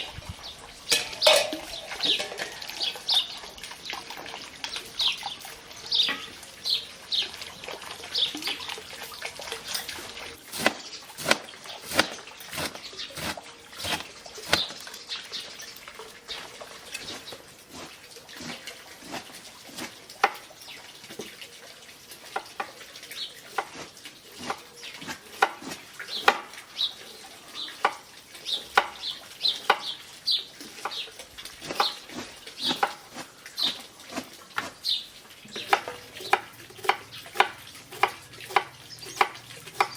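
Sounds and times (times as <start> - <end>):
birds chirping: 0.0 - 17.4, 26.0 - 34.0, 34.7 - 39.9
water splashing and dripping: 0.0 - 39.9.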